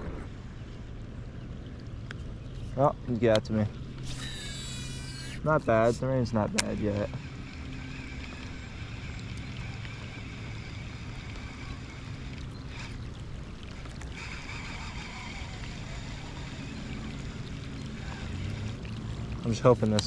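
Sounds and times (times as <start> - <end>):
wind noise: 0.0 - 0.5
low steady hum: 0.0 - 20.0.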